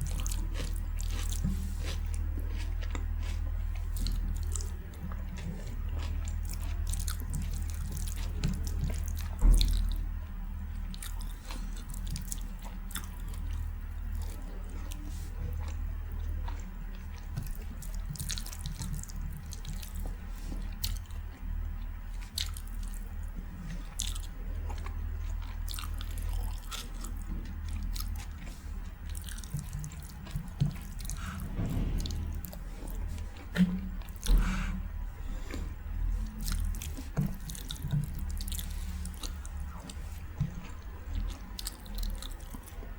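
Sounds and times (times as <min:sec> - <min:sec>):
steady low hum: 0:00.0 - 0:42.9
wet chewing: 0:00.0 - 0:42.9
loud knock: 0:31.4 - 0:34.0.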